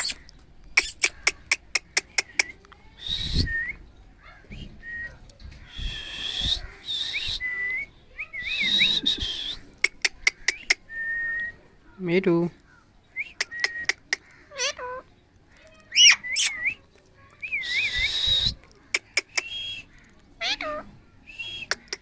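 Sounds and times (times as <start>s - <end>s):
parrot squawking: 0.0s - 0.2s, 0.8s - 1.4s, 14.5s - 15.0s, 16.0s - 16.6s, 20.4s - 20.9s
parrot whistling: 16.0s - 16.8s.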